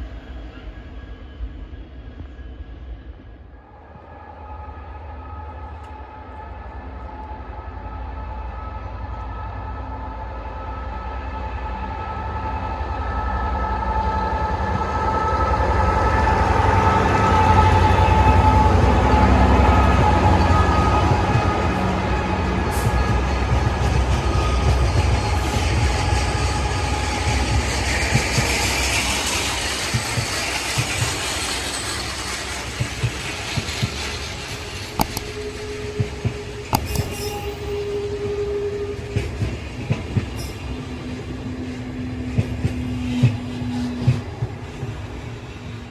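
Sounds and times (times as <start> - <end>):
diesel locomotive engine: 0.0 - 45.9
wagons clicking over rail joints: 27.0 - 38.0.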